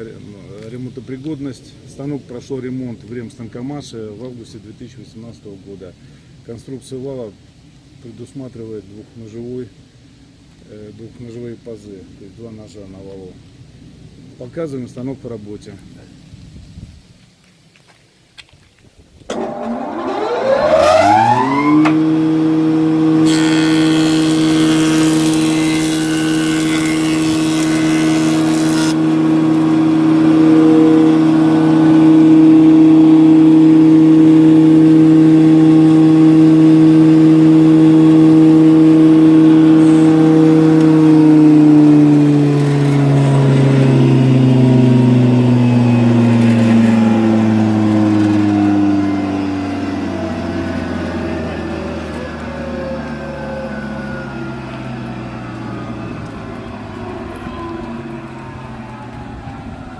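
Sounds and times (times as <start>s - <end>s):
wood jointer running: 19.3s - 56.4s.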